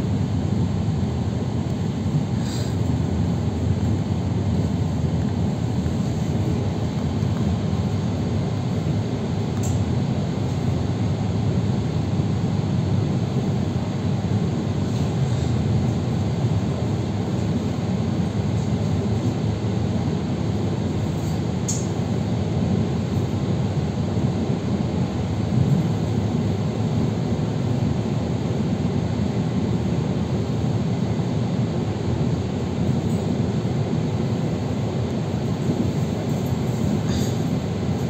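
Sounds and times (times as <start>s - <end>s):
train wheels rumbling on rails: 34.3s - 38.0s.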